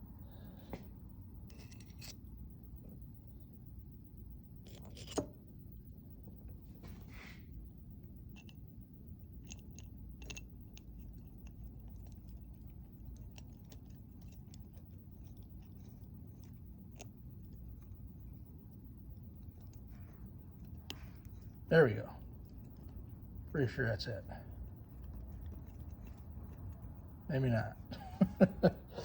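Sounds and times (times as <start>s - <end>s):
light scrape of parts: 0.7s - 2.4s, 4.6s - 5.4s
small parts clicking: 9.3s - 17.9s.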